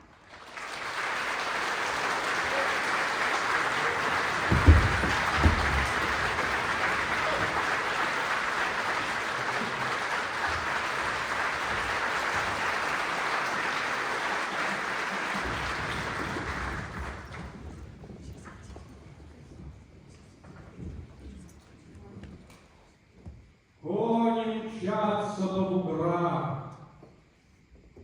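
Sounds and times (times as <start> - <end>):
audience applauding: 0.0 - 18.0
low thumps: 3.8 - 7.6.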